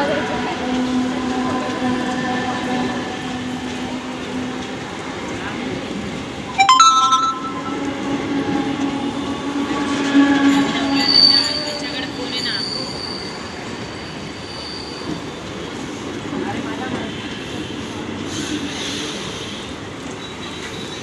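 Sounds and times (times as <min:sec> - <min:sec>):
train running on tracks: 0:00.0 - 0:21.0
loud tone: 0:06.5 - 0:08.4.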